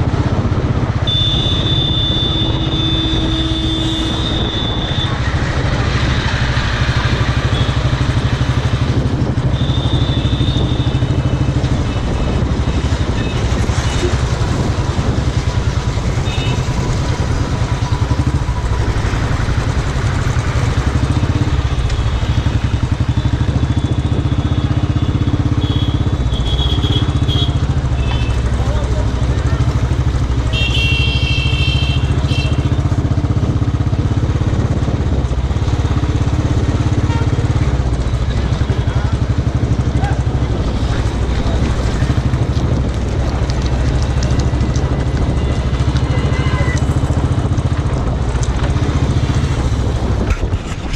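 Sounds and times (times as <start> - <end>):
motorcycle engine running: 0.0 - 50.9
motorcycle engine thumping: 39.2 - 50.9.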